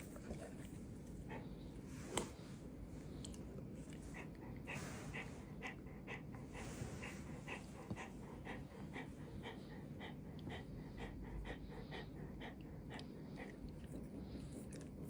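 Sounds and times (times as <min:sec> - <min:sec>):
dog panting: 0:03.9 - 0:15.0.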